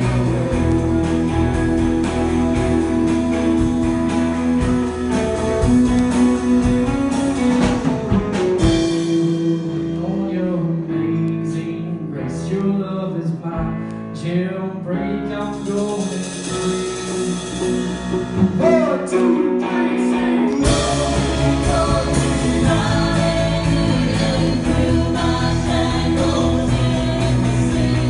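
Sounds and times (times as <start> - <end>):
worship band playing: 0.0 - 28.0
drum hits: 20.6 - 27.7.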